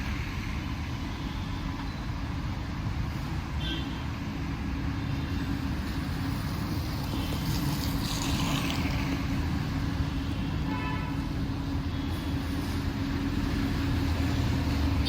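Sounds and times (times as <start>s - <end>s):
traffic engine rumble: 0.0s - 15.0s
vehicle hissing past on wet road: 6.4s - 9.4s.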